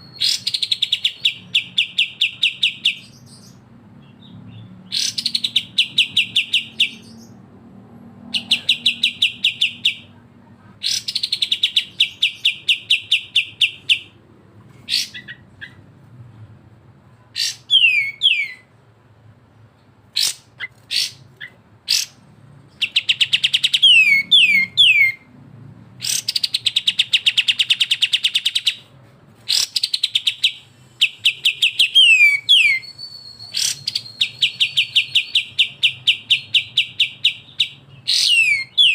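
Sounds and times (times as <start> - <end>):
songbirds rattling chatter: 19.8 - 24.8
bird sharp chips: 29.4 - 38.9
bird downward-sliding whistles: 32.0 - 35.4.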